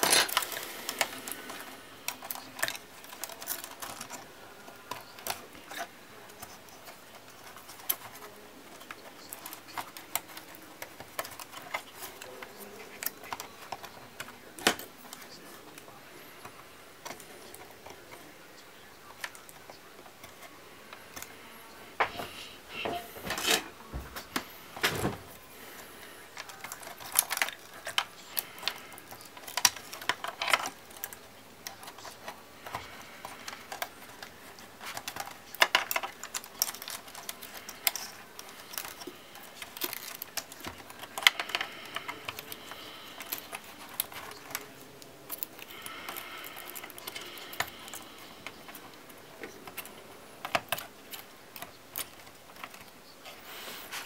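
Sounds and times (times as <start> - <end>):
clicks of small plastic pieces: 26.3 - 53.0.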